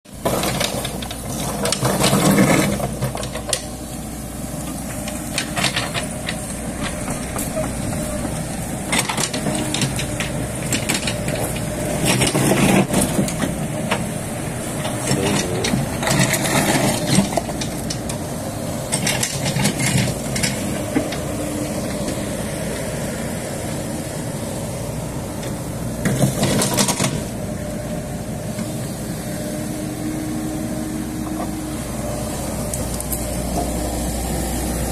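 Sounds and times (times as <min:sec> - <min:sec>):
mini excavator engine running: 0:00.1 - 0:34.9.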